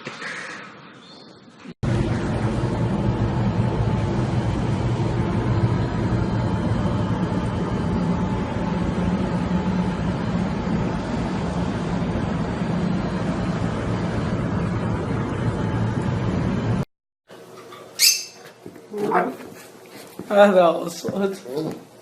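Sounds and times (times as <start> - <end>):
mechanical rumble with hiss: 1.8 - 16.8.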